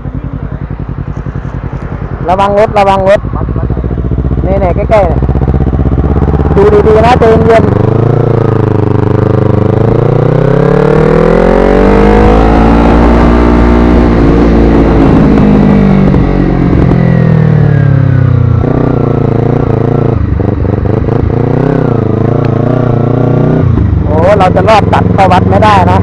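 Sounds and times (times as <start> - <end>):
motorcycle engine revving: 0.0 - 26.0
wind noise on microphone: 13.5 - 17.3.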